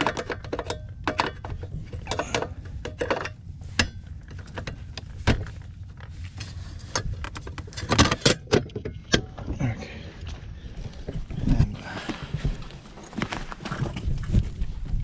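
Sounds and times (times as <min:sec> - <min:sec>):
metal parts clicking and knocking: 0:00.0 - 0:05.0
low steady rumble: 0:00.0 - 0:15.0.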